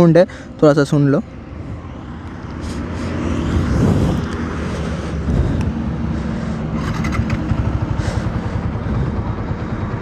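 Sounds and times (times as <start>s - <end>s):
motorcycle engine running: 1.6s - 10.0s.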